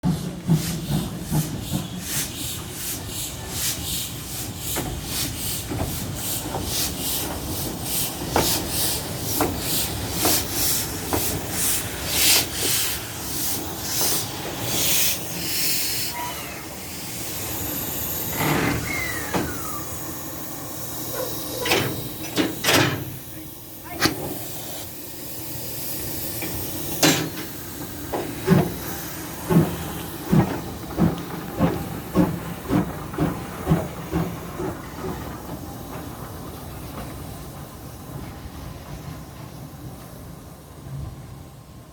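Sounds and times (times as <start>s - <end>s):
steam hissing: 0.0s - 41.5s
steam locomotive chuffing: 0.0s - 41.9s.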